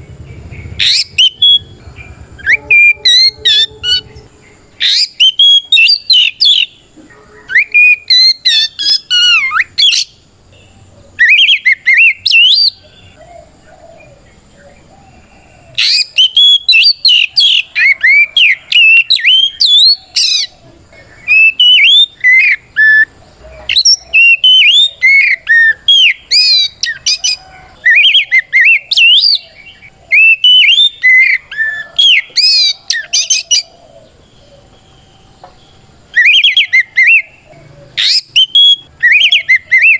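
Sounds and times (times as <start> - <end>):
bird singing whistled phrases: 0.8 - 6.7, 21.2 - 23.1, 30.2 - 33.7, 36.2 - 39.9.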